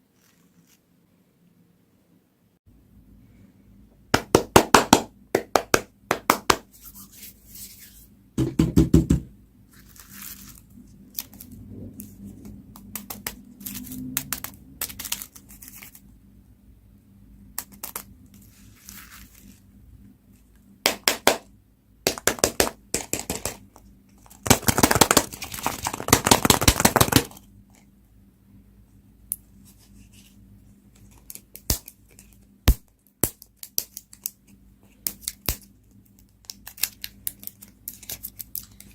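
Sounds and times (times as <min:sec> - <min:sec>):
plastic wrappers crinkling: 0:13.0 - 0:16.0, 0:24.2 - 0:27.4, 0:36.4 - 0:38.9.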